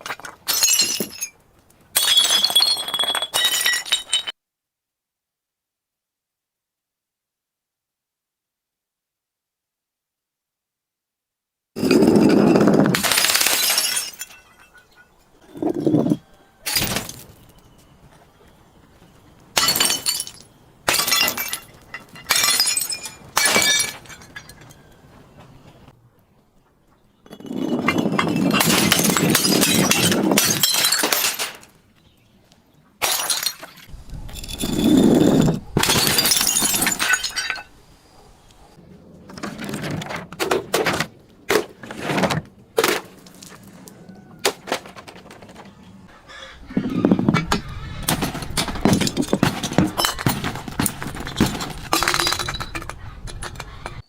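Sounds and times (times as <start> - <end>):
crunching glass: 0.0 - 4.4, 11.8 - 17.9, 19.5 - 25.0, 27.3 - 31.8, 33.0 - 38.2, 48.0 - 54.0
glass bottles smashing: 0.0 - 4.4, 11.8 - 17.6, 19.5 - 24.9, 27.3 - 31.8, 33.0 - 37.8, 48.0 - 52.9.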